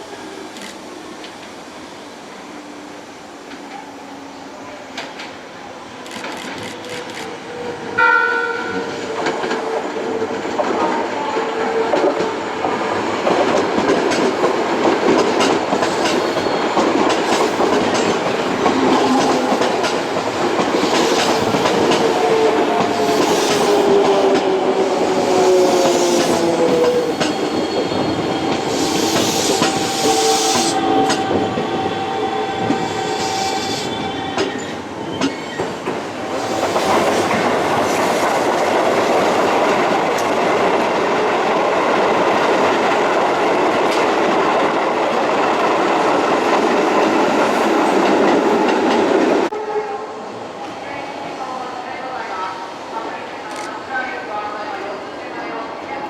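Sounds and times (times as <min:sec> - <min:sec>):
train horn blast: 0:08.0 - 0:09.1, 0:49.5 - 0:50.3
train cars clattering over rails: 0:08.4 - 0:49.3
train motor whine: 0:15.8 - 0:35.8.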